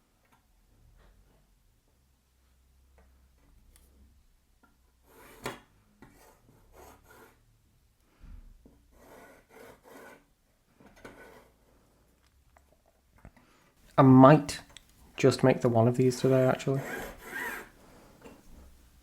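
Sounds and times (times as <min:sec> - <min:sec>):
pencil scraping on wooden board: 0:05.0 - 0:07.4, 0:08.9 - 0:11.7, 0:16.2 - 0:17.7.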